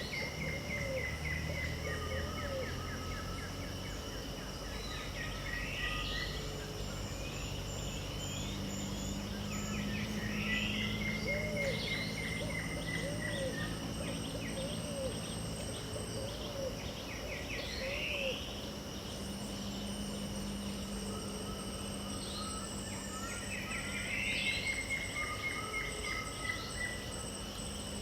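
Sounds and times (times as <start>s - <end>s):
birds calling: 0.0s - 28.0s
insects droning: 0.0s - 28.0s.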